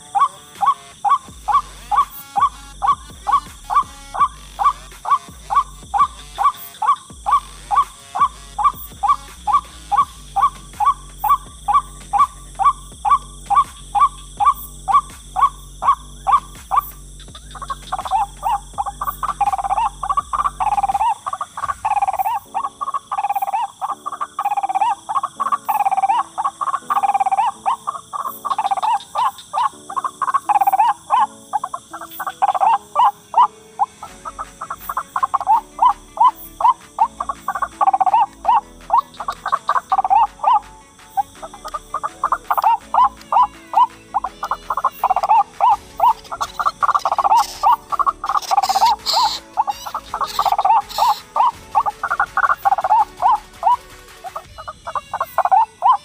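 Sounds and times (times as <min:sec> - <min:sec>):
bird calls: 0:00.0 - 0:56.0
electronic bass line: 0:01.0 - 0:22.7, 0:34.1 - 0:55.4.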